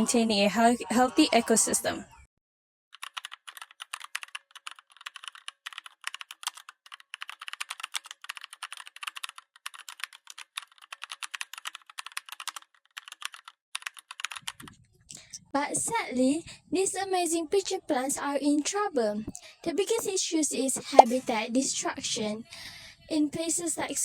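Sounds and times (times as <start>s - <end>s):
keyboard typing: 3.0s - 14.7s.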